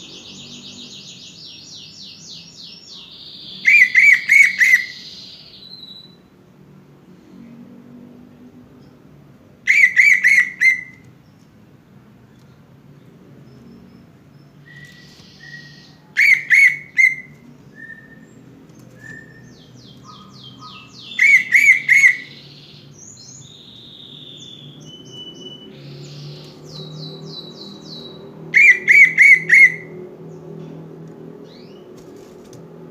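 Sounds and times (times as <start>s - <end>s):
fast downward bird chirps: 0.0s - 6.2s, 9.7s - 11.0s, 14.6s - 29.9s
bird song bursts: 0.0s - 6.3s, 12.4s - 30.6s
soft whistled bird notes: 14.4s - 29.9s.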